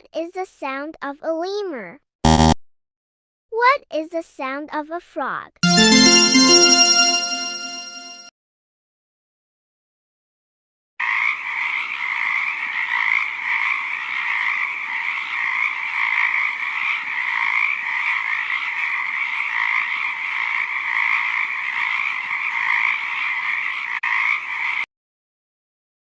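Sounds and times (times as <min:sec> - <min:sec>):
frogs calling: 0:11.0 - 0:24.8.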